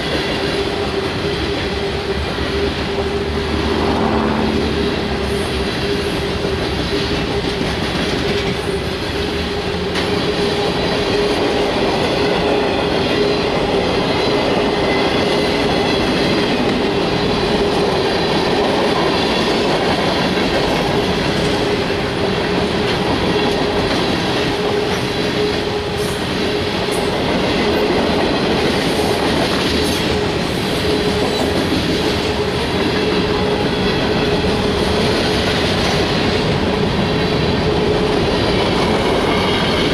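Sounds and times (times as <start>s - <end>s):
train wheels rumbling on rails: 0.0s - 39.9s
steady whining tone: 0.4s - 7.4s.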